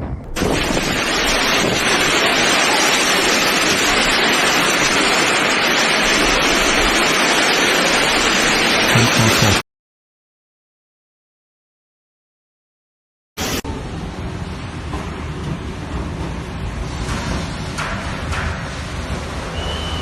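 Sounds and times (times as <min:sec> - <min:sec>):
hail and rain pounding: 0:00.3 - 0:09.6.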